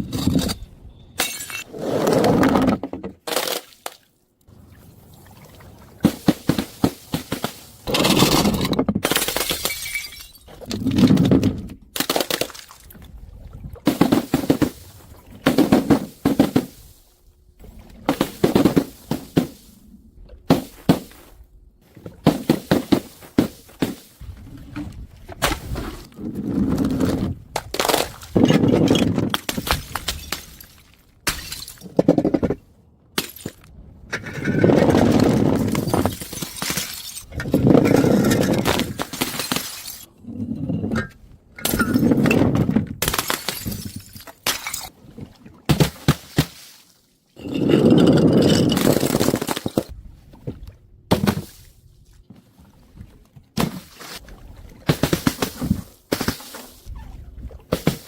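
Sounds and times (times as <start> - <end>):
glass bottles smashing: 1.2 - 1.7, 8.0 - 10.6, 31.3 - 31.9, 33.2 - 33.6, 35.6 - 42.3, 43.0 - 44.9, 47.4 - 49.9.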